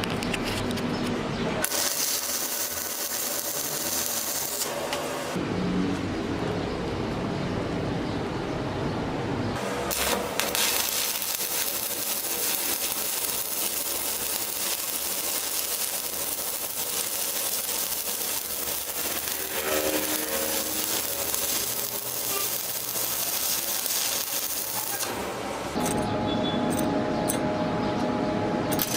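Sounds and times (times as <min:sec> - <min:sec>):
welding arc crackling and hissing: 0:01.6 - 0:05.4, 0:09.6 - 0:25.8.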